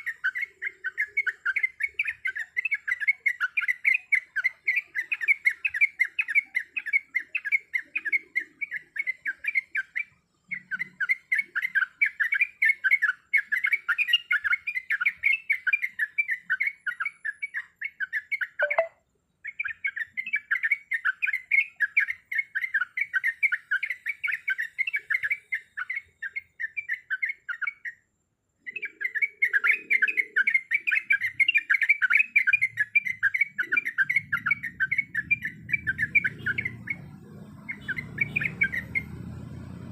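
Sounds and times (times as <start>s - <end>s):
bird chirping chatter: 0.0s - 39.9s.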